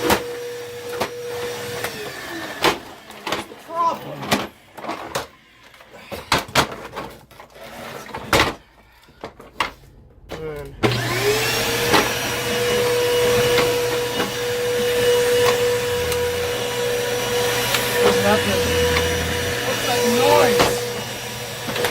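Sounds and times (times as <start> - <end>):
vacuum cleaner motor whine: 0.0 - 5.2, 10.6 - 21.9.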